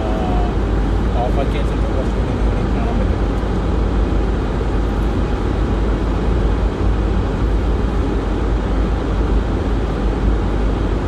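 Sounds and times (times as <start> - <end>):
car road noise inside cabin: 0.0 - 11.0.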